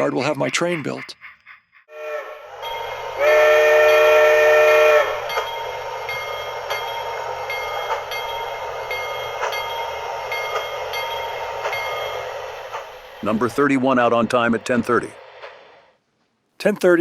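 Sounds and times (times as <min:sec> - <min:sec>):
model train running: 0:00.0 - 0:16.0
model train multi-tone whistle: 0:01.9 - 0:08.3.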